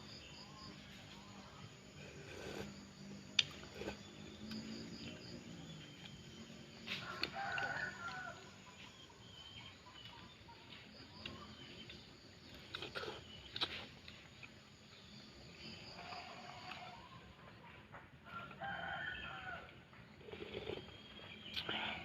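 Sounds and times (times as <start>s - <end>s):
rooster crowing: 6.9s - 8.6s, 18.2s - 19.7s.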